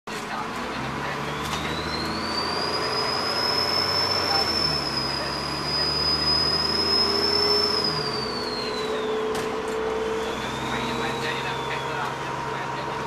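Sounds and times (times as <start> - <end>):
diesel engine running: 0.1 - 13.0
turbocharger whistling: 0.7 - 13.0.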